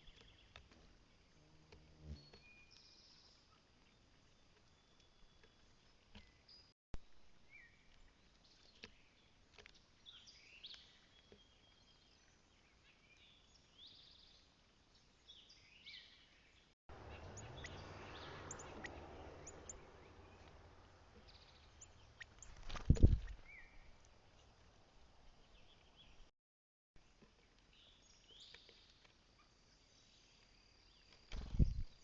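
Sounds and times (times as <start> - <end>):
songbirds chirping: 0.0 - 26.3, 27.0 - 32.0.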